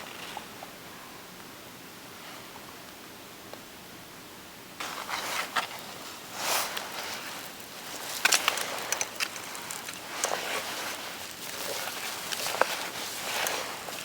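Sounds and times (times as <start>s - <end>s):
dry brush rustling: 4.8s - 14.0s
twigs snapping: 6.6s - 14.0s.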